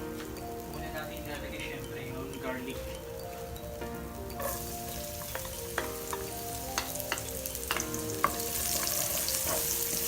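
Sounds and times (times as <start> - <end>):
garlic sizzling in frying pan: 0.0 - 10.0
utensil tapping pan: 4.3 - 10.0.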